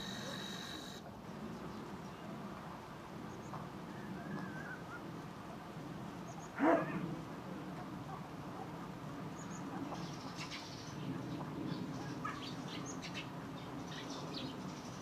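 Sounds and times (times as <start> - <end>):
bird barking call: 0.0 - 1.0
faint wavering bird call: 0.0 - 1.0.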